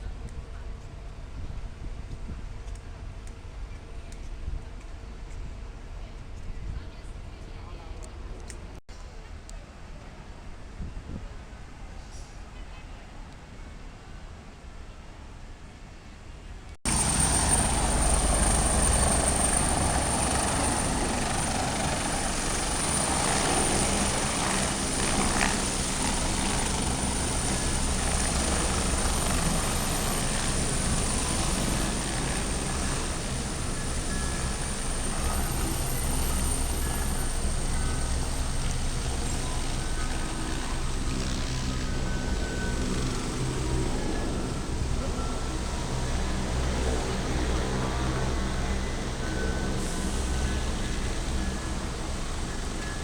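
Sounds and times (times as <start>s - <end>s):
helicopter engine and rotor: 16.8s - 53.0s
high-pitched whine: 16.9s - 53.0s.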